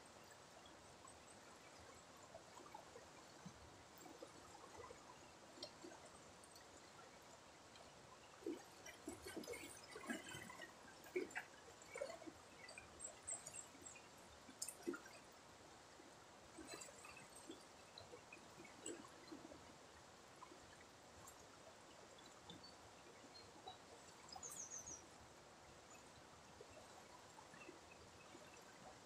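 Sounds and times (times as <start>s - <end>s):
river water trickling: 0.0s - 29.0s
water drips and plops: 1.7s - 15.4s, 16.5s - 19.7s.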